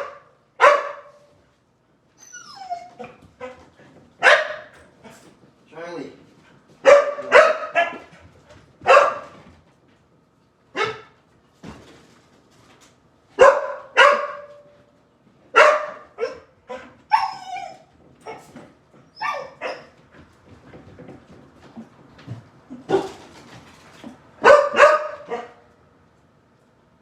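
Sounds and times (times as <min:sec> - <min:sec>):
dog barking: 0:00.0 - 0:01.3, 0:04.2 - 0:04.8, 0:06.8 - 0:08.1, 0:08.8 - 0:09.4, 0:10.7 - 0:11.2, 0:13.4 - 0:14.7, 0:15.5 - 0:17.3, 0:24.4 - 0:25.6.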